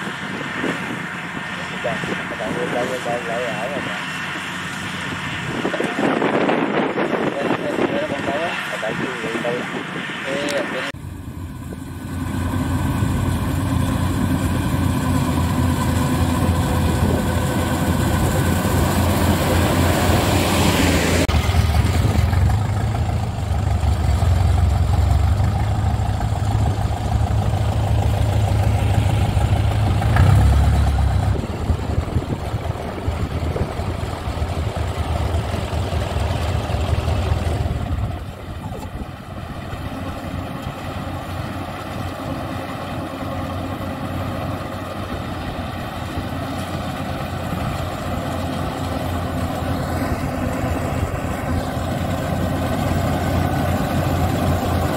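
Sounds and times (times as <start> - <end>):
diesel engine drone: 0.0 - 54.9
loud rushing noise: 16.2 - 22.3.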